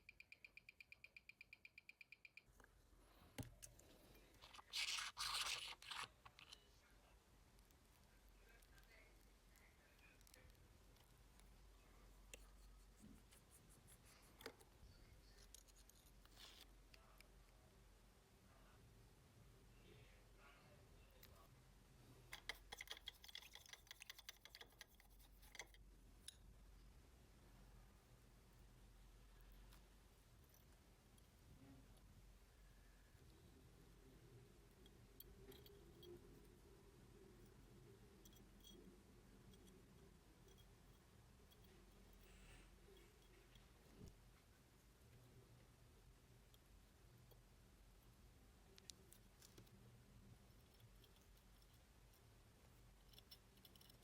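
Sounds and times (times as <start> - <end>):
watch movement ticking: 0.0 - 2.5.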